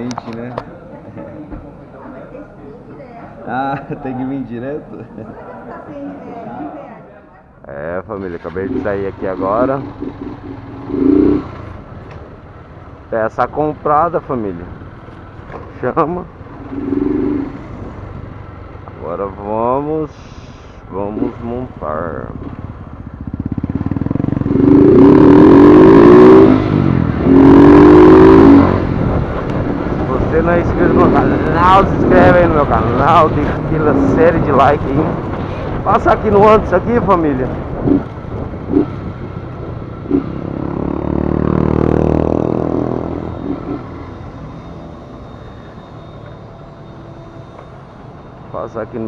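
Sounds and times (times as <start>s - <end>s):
motorcycle engine accelerating: 8.2s - 13.0s, 13.8s - 19.2s, 21.1s - 49.0s.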